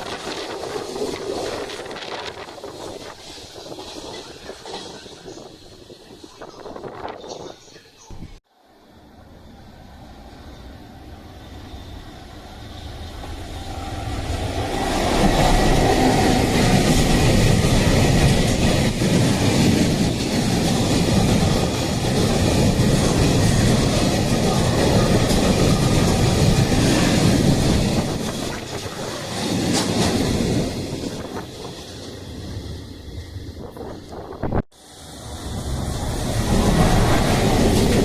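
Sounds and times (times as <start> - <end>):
freight train wheels on rails: 0.0 - 38.0.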